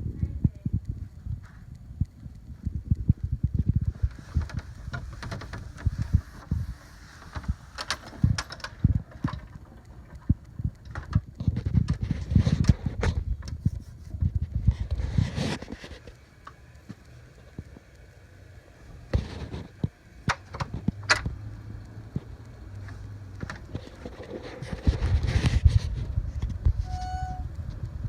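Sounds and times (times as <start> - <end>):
low rumble: 0.0 - 15.3
storm wind buffeting microphone: 0.0 - 15.8, 23.2 - 28.0
light ticks: 7.4 - 12.0.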